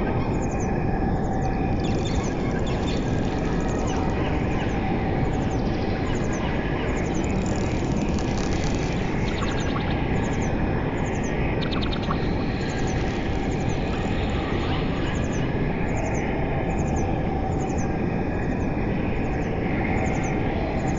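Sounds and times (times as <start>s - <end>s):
birds chirping: 0.3s - 16.2s.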